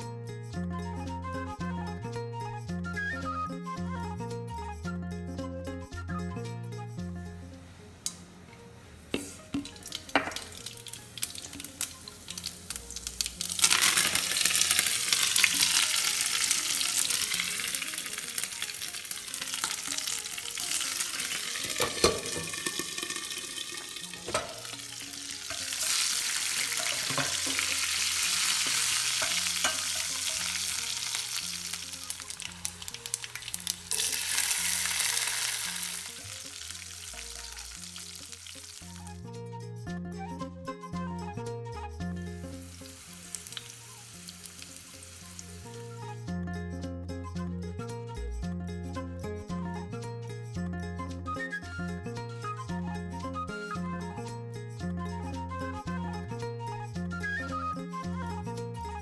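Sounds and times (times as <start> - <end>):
seeds crackling and popping in oil: 9.1 - 39.2, 42.4 - 46.1
loud sizzle of frying: 9.2 - 39.2, 42.4 - 46.1.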